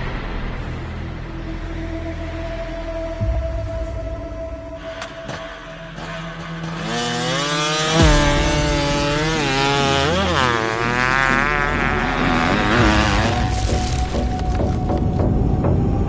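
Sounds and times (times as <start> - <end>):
motocross bike engine revving: 5.9 - 13.9.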